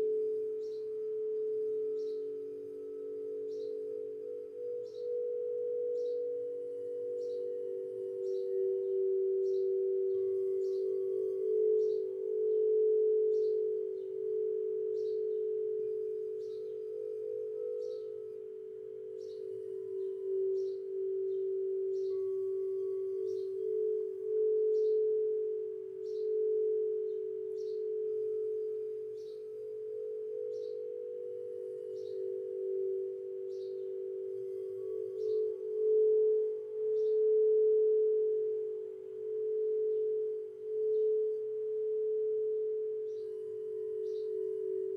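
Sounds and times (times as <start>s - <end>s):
bird chirping: 0.0s - 44.9s
singing bowl tone: 0.0s - 44.9s.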